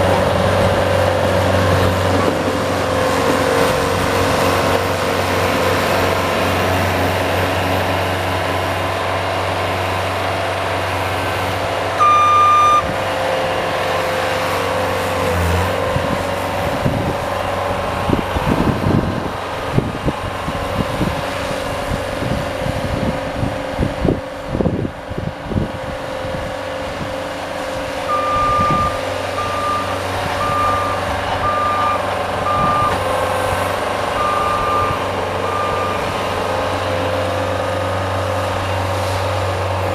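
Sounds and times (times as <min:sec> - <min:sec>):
long beep: 0:12.0 - 0:12.9, 0:28.1 - 0:33.0
reverse warning beeps: 0:12.0 - 0:12.9, 0:28.1 - 0:33.0, 0:34.2 - 0:36.1.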